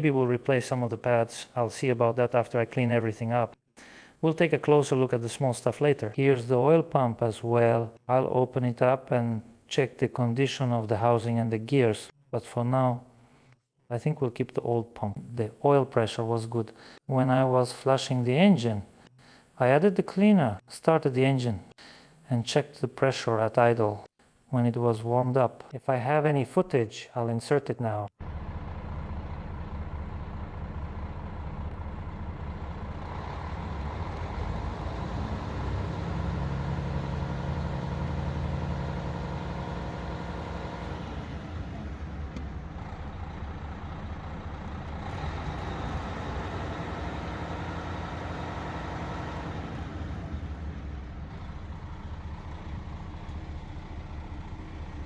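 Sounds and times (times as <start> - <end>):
diesel engine idling: 28.2 - 55.0.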